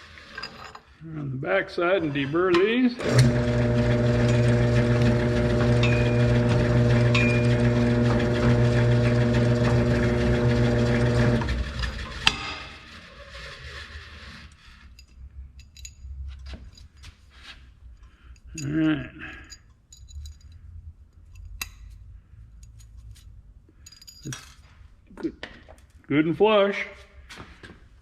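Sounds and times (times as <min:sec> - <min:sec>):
power tool motor running: 0:03.0 - 0:12.4
light metal clinks: 0:23.8 - 0:24.7.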